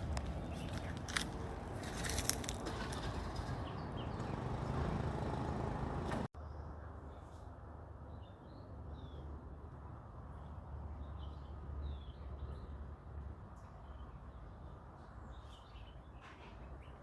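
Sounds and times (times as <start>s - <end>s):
small birds chirping: 0.0s - 6.3s.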